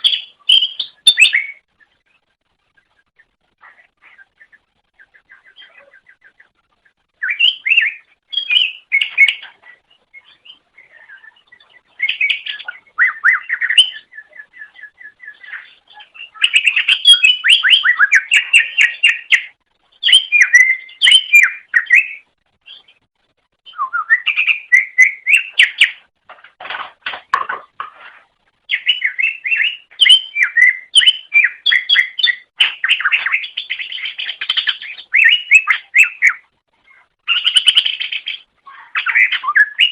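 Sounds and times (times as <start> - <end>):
bird singing chattering trills: 7.2 - 23.0, 28.7 - 39.9.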